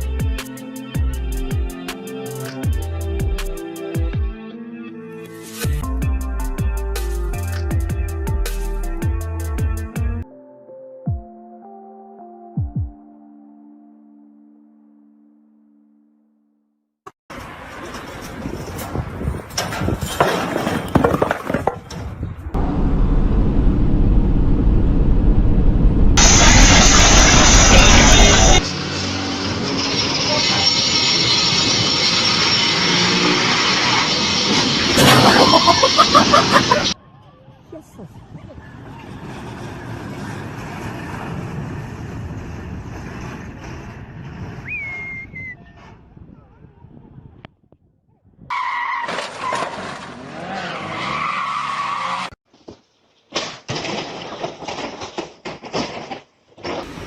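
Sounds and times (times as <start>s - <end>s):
steady low rumble: 22.6s - 28.6s
high-pitched rising squeal: 22.6s - 37.0s
road vehicle rumble and hiss: 26.2s - 37.0s, 38.5s - 44.6s
sharp knocks and cracks: 52.6s - 56.9s.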